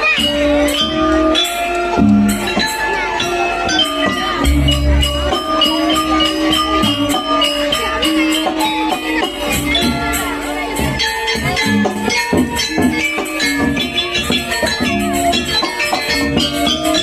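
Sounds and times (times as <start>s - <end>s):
jingling percussion beat: 0.0s - 17.0s
sustained metallic tones: 4.2s - 8.0s
deep low drum stroke: 4.3s - 7.3s.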